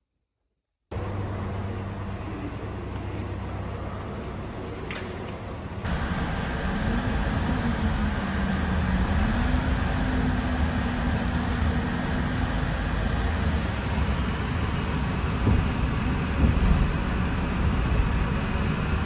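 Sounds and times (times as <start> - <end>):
low hum rising and falling: 5.9 - 19.0
moving vehicle rumble: 5.9 - 19.0.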